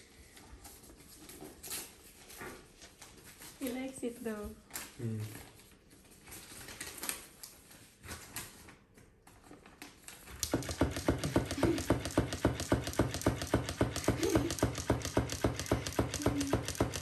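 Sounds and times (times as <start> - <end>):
mechanism clicking rapidly: 10.4 - 17.0.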